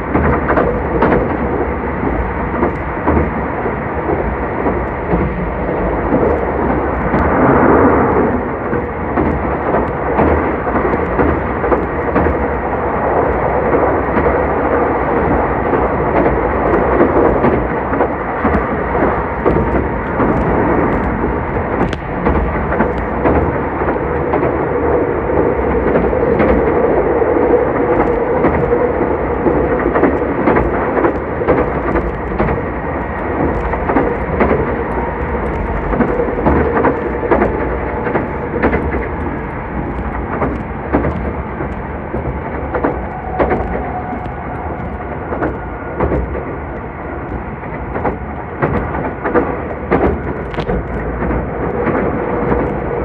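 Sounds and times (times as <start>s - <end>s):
train wheels rumbling on rails: 0.0s - 53.0s
clicks and knocks: 0.1s - 24.6s, 27.5s - 53.0s.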